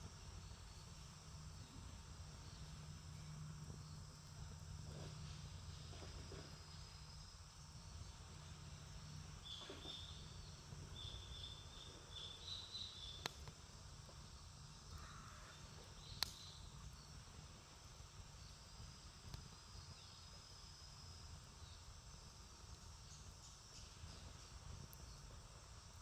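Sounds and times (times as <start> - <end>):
burning wood popping: 13.2 - 14.3, 16.1 - 16.4.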